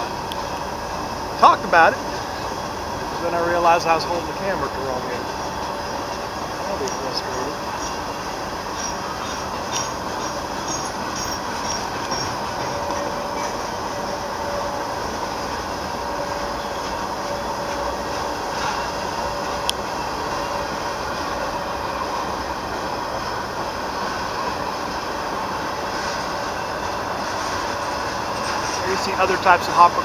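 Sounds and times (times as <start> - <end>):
faint steady whine: 0.0 - 30.0
train wheels rumbling on rail: 0.0 - 30.0.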